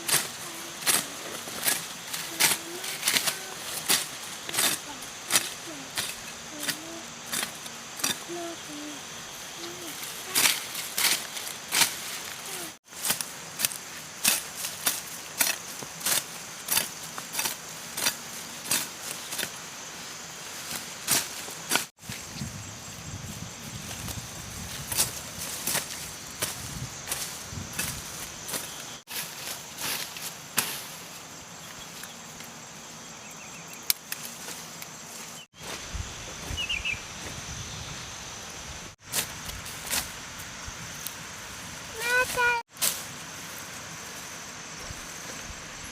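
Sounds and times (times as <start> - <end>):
insects buzzing: 0.0 - 45.9
bird chirping: 36.5 - 38.0.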